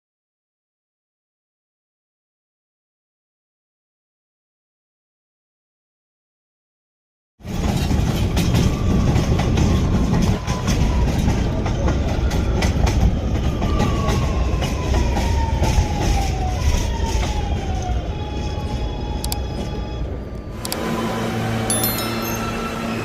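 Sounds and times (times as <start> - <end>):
subway train rumbling on rails: 7.4 - 23.0
wheels clicking over rail joints: 7.4 - 23.0
whine gliding downward: 20.3 - 23.0.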